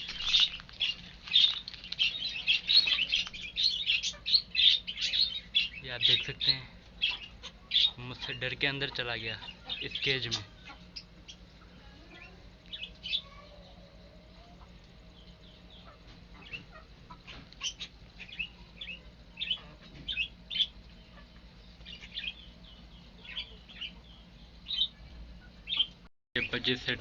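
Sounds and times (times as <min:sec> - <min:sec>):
faint steady low hum: 0:00.0 - 0:27.0
small birds chirping: 0:00.0 - 0:27.0.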